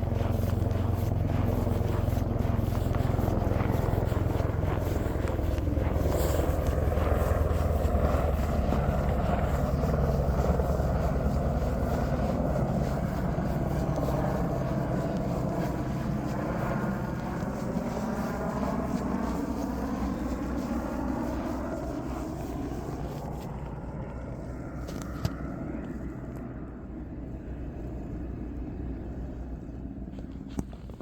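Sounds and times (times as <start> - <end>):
motor engine droning: 0.0 - 31.0.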